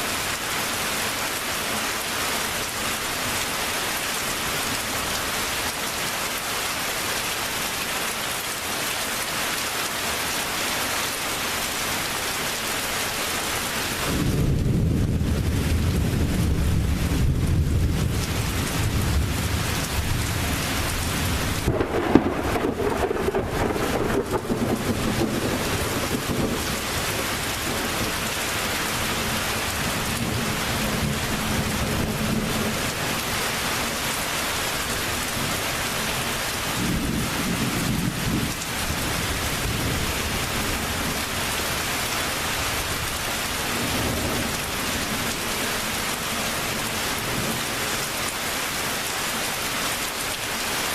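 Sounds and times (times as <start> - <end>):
heavy rain: 0.0 - 50.9
thunder rumbling: 14.0 - 28.4
sharp thunder crack: 21.6 - 26.6.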